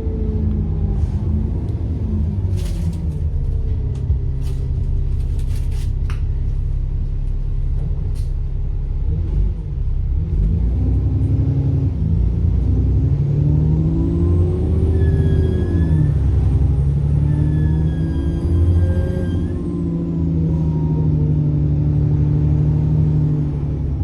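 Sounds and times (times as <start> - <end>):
bus engine rumbling: 0.0 - 24.0.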